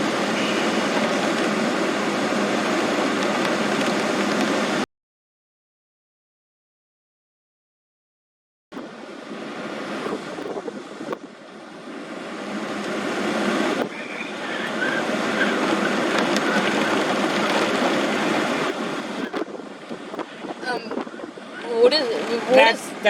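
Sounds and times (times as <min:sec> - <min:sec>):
wind rushing: 0:14.9 - 0:21.4.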